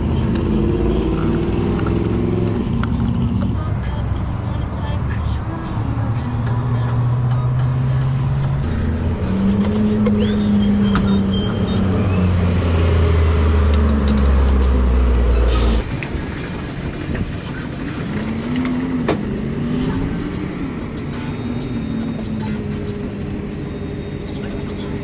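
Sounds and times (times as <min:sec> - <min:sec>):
road noise: 0:00.0 - 0:25.0
motorcycle engine: 0:06.8 - 0:25.0.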